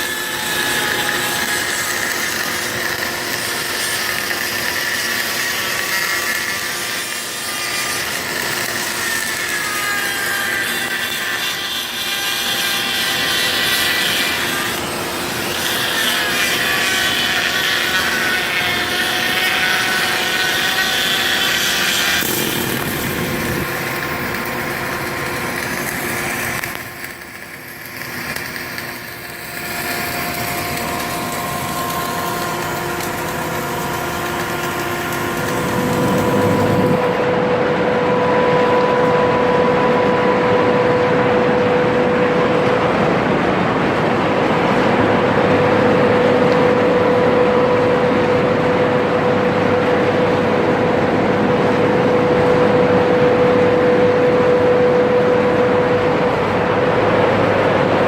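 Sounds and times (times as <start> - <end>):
power tool motor whining: 11.3 - 24.6, 29.3 - 37.2.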